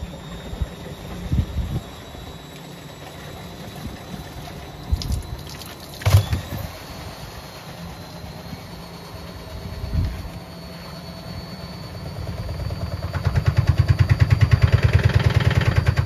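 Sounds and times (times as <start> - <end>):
washing machine humming: 0.0 - 16.0
water sloshing: 4.3 - 6.7.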